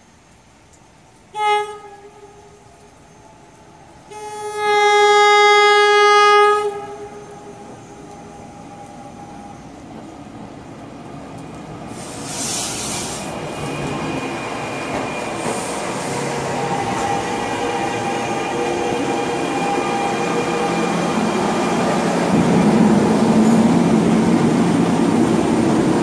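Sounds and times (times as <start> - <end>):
train rumble and wheel noise: 0.2 - 26.0
train horn blast: 1.3 - 9.2, 16.0 - 23.8
brief hiss: 11.9 - 14.0, 15.3 - 16.4.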